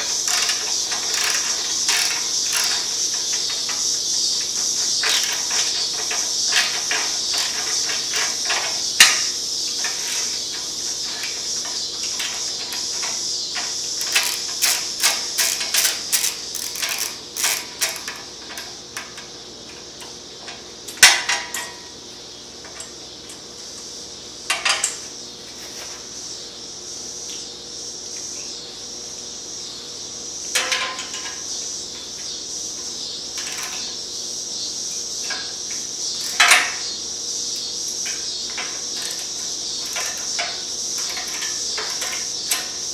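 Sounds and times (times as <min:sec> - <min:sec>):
metal tools clinking on exhaust: 0:00.0 - 0:19.3, 0:20.4 - 0:22.0, 0:30.5 - 0:31.5, 0:33.3 - 0:34.0, 0:34.9 - 0:42.9
steady high hiss: 0:00.0 - 0:42.9.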